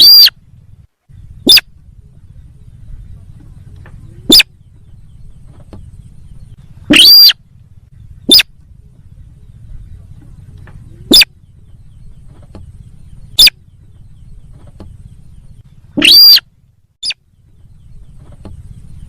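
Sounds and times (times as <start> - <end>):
sharp bird call notes: 0.0 - 0.4, 6.8 - 7.4, 16.0 - 17.2
low hum: 0.0 - 19.0.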